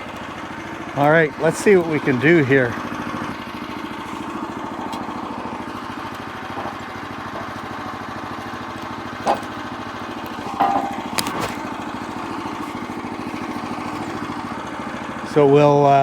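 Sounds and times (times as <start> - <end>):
sawmill gas engine running: 0.0 - 16.0
metal clanks: 10.3 - 14.4.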